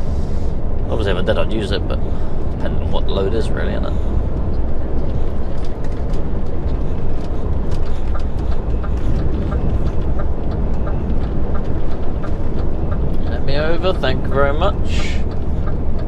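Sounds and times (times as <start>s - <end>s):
lorry engine rumble: 0.0s - 16.0s
road noise: 0.0s - 16.0s
indicator ticking: 7.0s - 16.0s.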